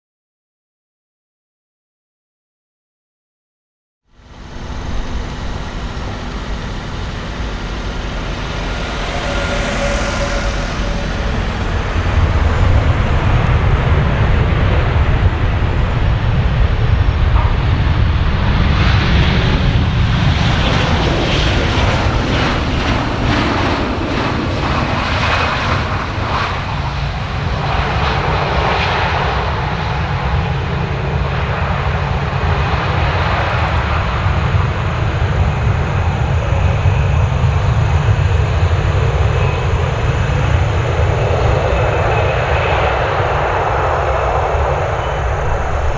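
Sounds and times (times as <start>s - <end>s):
jet engines running: 4.1s - 24.3s, 30.6s - 45.9s.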